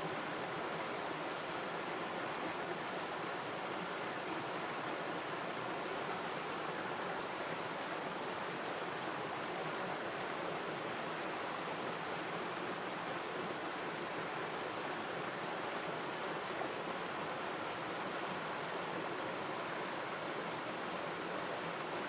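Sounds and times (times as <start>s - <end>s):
river water flowing: 0.0s - 22.0s.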